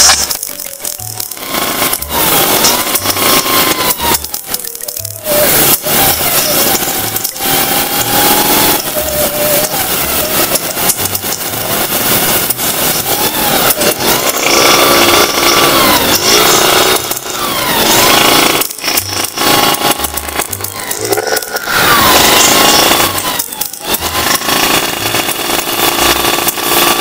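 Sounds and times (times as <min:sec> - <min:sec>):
two-stroke motorcycle engines revving: 0:00.0 - 0:27.0.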